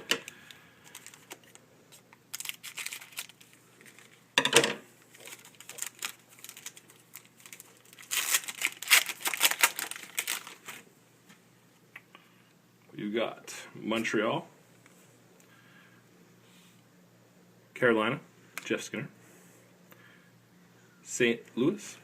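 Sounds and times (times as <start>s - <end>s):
foil wrapper crinkling and tearing: 0.3s - 4.2s, 5.0s - 10.8s.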